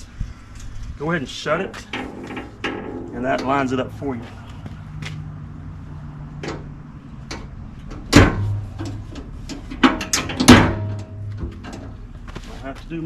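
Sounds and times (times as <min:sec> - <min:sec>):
door clanking and clicking: 0:07.3 - 0:12.0
car door slamming with metallic bang: 0:08.0 - 0:08.8, 0:09.9 - 0:11.4.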